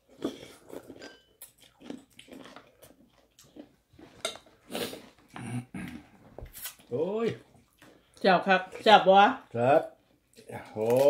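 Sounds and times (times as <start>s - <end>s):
people chewing: 0.0s - 11.0s
wet mouth noises: 4.7s - 6.9s.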